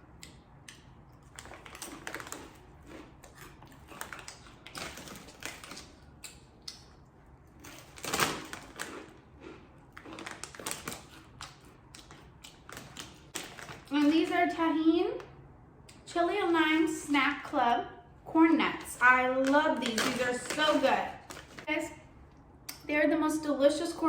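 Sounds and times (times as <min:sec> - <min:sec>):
chips crunching while chewed: 0:00.2 - 0:07.0, 0:07.6 - 0:14.0.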